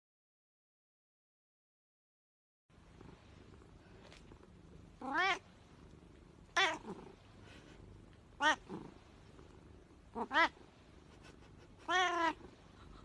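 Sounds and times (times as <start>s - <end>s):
kitten meowing: 5.0s - 5.4s, 8.4s - 8.7s, 11.9s - 12.4s.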